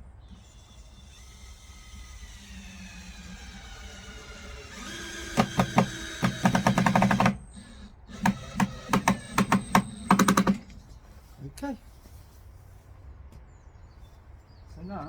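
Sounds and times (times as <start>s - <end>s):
power tool driving screws: 0.3s - 10.8s.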